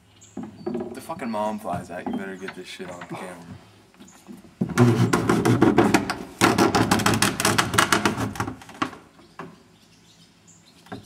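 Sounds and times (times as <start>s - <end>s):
rapid clatter of knocks and rattles: 4.3s - 9.5s.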